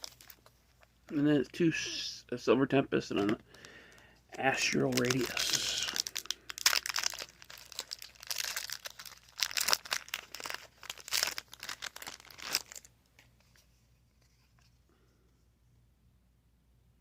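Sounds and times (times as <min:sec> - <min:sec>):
foil wrapper tearing and crinkling: 0:00.0 - 0:00.4, 0:04.5 - 0:12.9.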